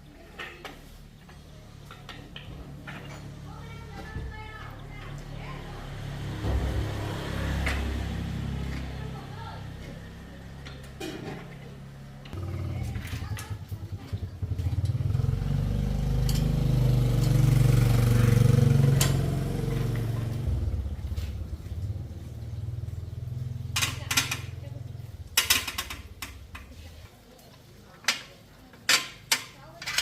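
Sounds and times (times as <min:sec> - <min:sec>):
small engine running: 0:12.3 - 0:21.6.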